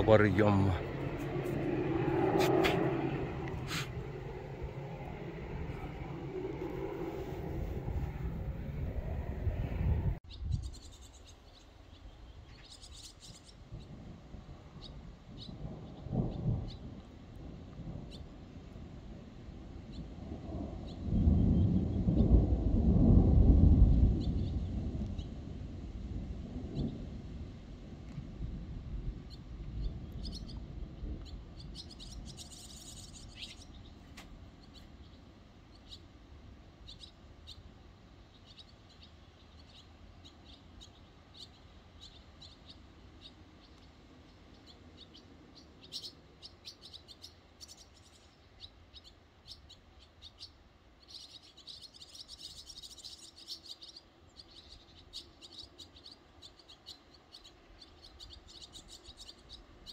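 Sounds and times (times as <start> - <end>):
low rumble of thunder: 0.0 - 10.8, 12.3 - 35.1
small birds chirping: 0.0 - 14.1, 14.7 - 17.2, 23.9 - 25.4, 29.2 - 59.9.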